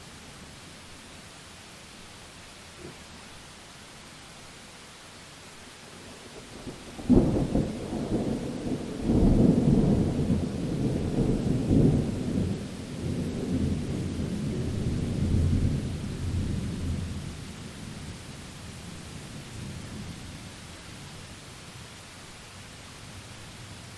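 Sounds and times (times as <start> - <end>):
rain hissing: 0.0 - 23.9
thunder crack and rumble: 6.7 - 17.3.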